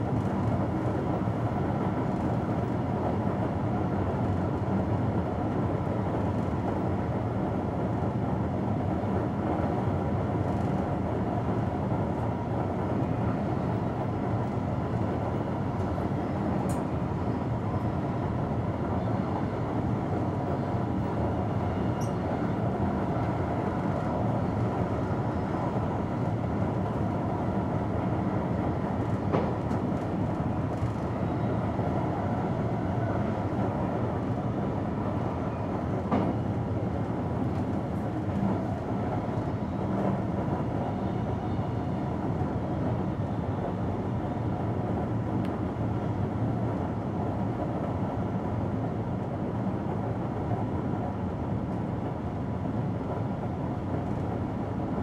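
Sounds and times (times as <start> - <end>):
train wheels rolling on rails: 13.9 - 55.0.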